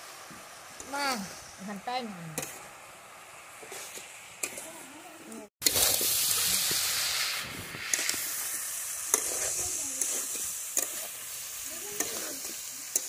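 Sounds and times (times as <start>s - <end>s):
food sizzling in a wok: 0.0s - 13.0s
metal spatula scraping wok: 3.6s - 4.8s, 5.6s - 13.0s.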